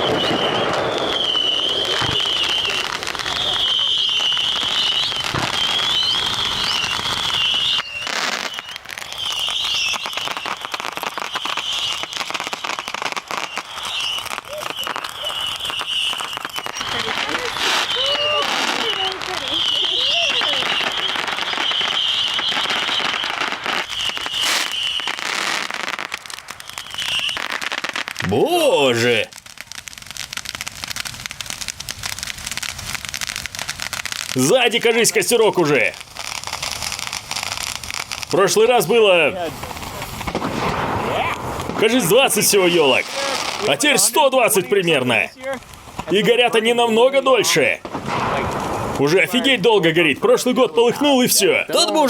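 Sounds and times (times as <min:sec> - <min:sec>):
high whistling tone: 0:00.0 - 0:02.8
high wavering whistle: 0:00.0 - 0:10.0
bonfire crackling and popping: 0:00.0 - 0:52.0.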